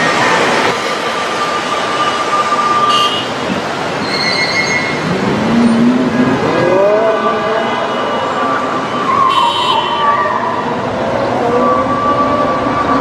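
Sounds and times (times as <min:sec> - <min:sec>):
street traffic noise: 0:00.0 - 0:13.0
vehicle engine speeding up: 0:05.0 - 0:07.8.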